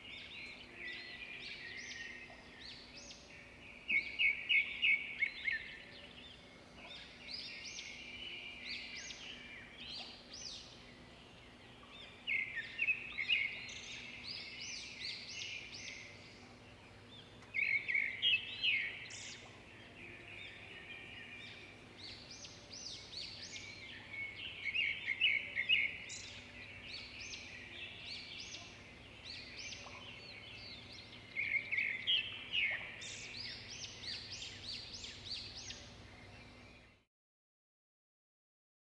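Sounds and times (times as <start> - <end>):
bird song phrase: 0.0 - 37.1.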